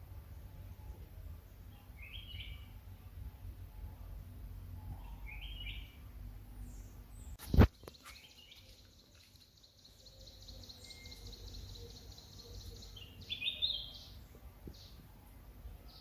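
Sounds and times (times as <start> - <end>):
birds chirping: 0.2 - 3.9, 4.7 - 16.0.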